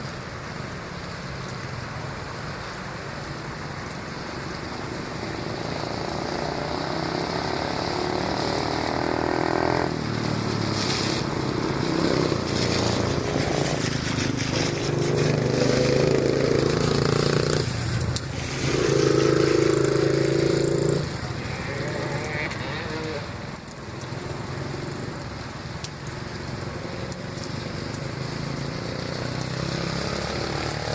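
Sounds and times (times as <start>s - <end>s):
dirt bike engine revving: 18.6s - 23.2s.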